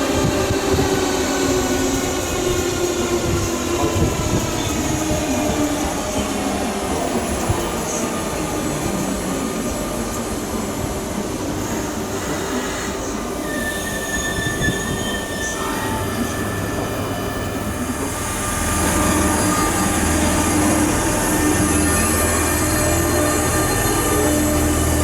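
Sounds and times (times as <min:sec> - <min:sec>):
train running through station: 0:00.0 - 0:25.0
high squeal: 0:13.4 - 0:25.0.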